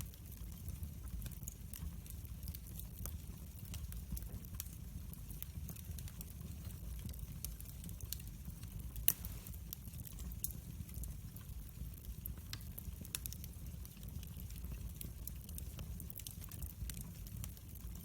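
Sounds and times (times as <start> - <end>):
fire crackling in fireplace: 0.0 - 18.0
fire pop: 9.0 - 10.3.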